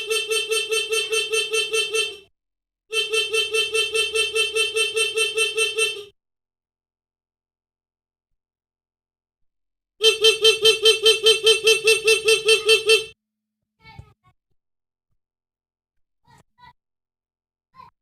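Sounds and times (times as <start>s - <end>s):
motorcycle horn stuttering beep: 0.0s - 2.3s, 2.9s - 6.1s, 10.0s - 13.2s.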